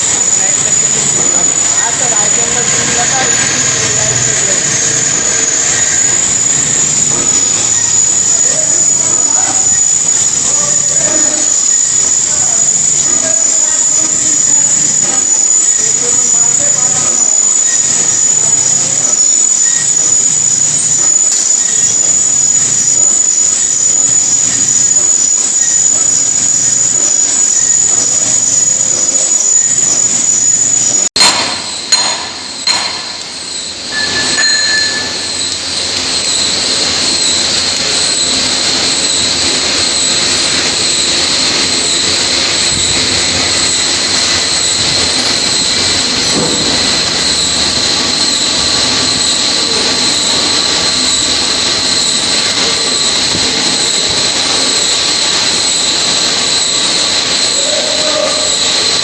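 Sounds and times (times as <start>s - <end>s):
lathe tool squealing on metal: 0.0s - 31.1s, 31.7s - 59.0s
sharp knocks: 31.2s - 33.2s.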